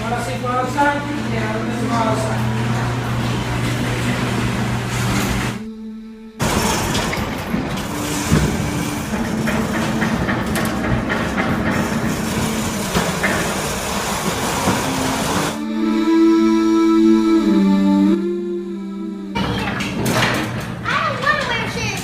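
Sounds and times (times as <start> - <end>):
garage door rollers rattling: 0.0 - 5.6, 6.4 - 15.6, 19.4 - 22.0
low hum: 0.0 - 19.5.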